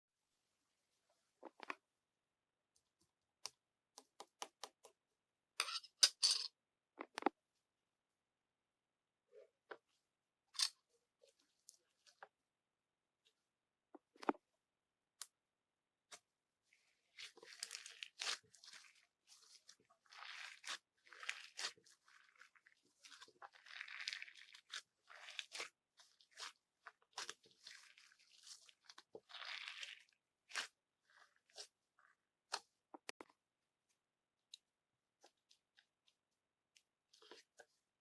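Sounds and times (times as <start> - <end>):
crunching and crinkling: 17.1 - 32.7.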